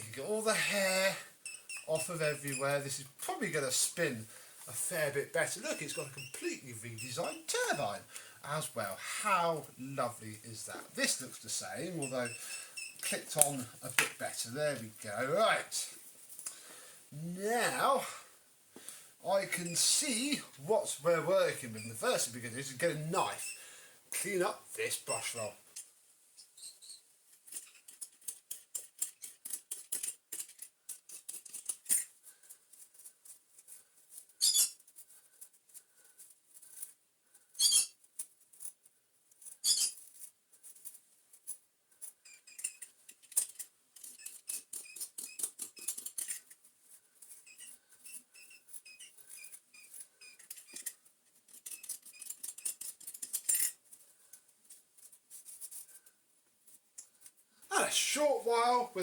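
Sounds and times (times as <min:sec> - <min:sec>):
utility knife scraping brush bristles: 0:47.4 - 0:53.8.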